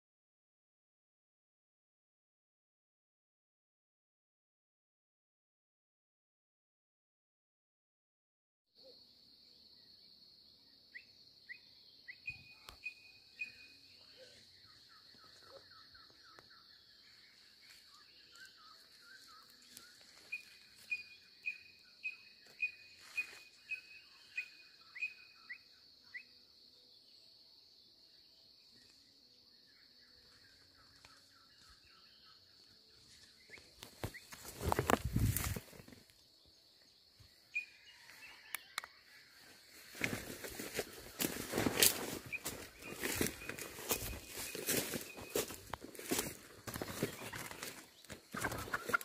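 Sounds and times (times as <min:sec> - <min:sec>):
birds chirping: 0:10.7 - 0:27.0, 0:28.6 - 0:39.1, 0:39.8 - 0:49.0.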